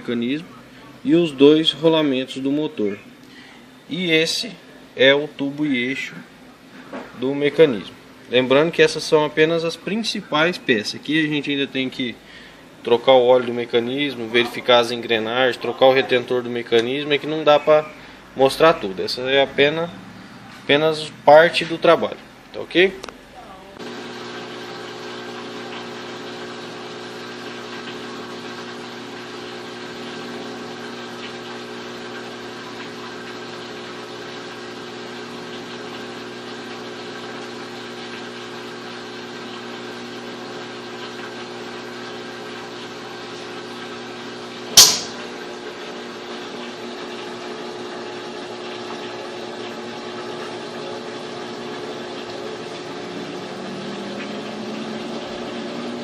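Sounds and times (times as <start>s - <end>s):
washing machine motor hum: 0.0s - 56.0s
sharp click: 44.8s - 45.2s.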